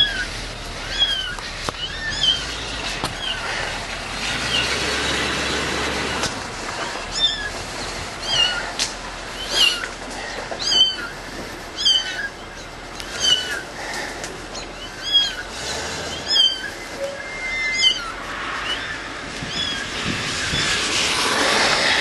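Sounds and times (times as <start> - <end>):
cat meowing: 0.0 - 3.5, 7.1 - 7.6, 8.2 - 8.8, 10.5 - 11.2, 11.8 - 13.6, 14.5 - 20.7.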